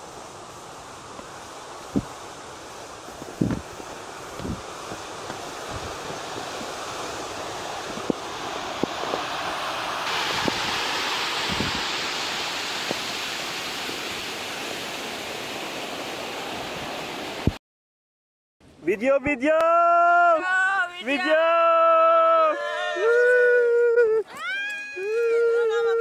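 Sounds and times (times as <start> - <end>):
stream rushing over rocks: 0.0 - 17.6.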